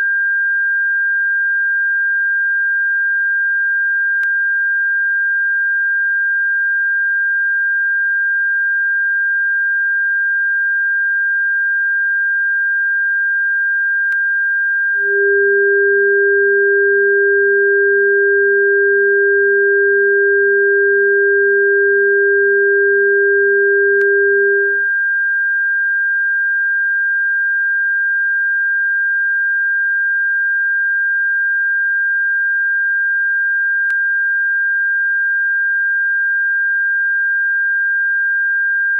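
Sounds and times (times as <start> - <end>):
high-pitched pure tone: 15.0 - 24.9
lower electronic tone: 15.0 - 24.9.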